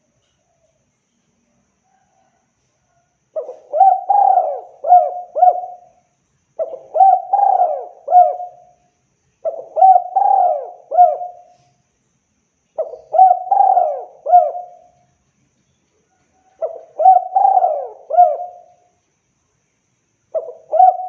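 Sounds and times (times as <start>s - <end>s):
dove cooing: 3.4s - 6.0s, 6.6s - 8.8s, 9.4s - 11.7s, 12.8s - 15.0s, 16.4s - 18.9s, 20.3s - 21.0s.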